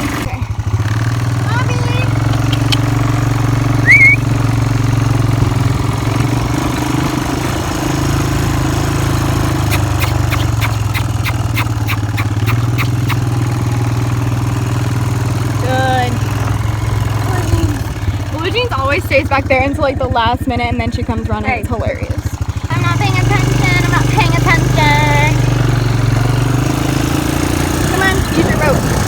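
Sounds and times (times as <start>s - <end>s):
atv engine running: 0.0s - 29.0s
light ticks: 2.3s - 2.9s
high rising squeal: 3.8s - 4.3s.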